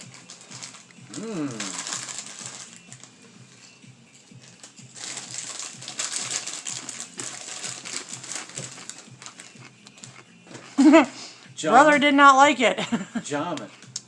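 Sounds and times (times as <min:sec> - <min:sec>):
foil chip bag crinkling: 0:00.0 - 0:03.2, 0:04.4 - 0:10.2.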